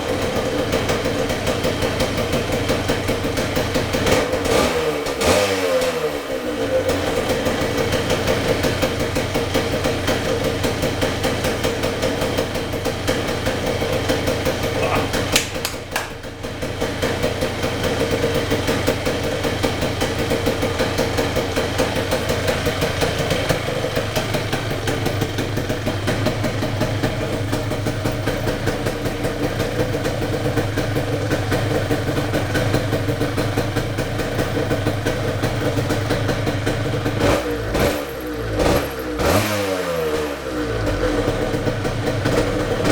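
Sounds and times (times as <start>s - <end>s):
two-stroke engine idling: 0.0s - 42.9s
sharp click: 15.3s - 16.2s.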